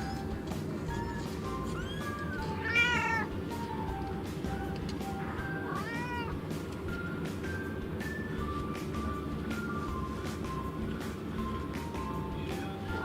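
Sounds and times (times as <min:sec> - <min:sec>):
cat meowing: 0:01.6 - 0:03.4, 0:05.2 - 0:06.4.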